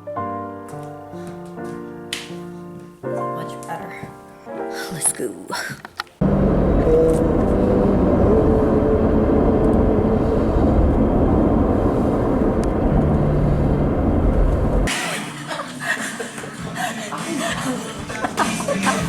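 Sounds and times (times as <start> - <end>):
road and engine rumble in car: 6.2 - 14.9.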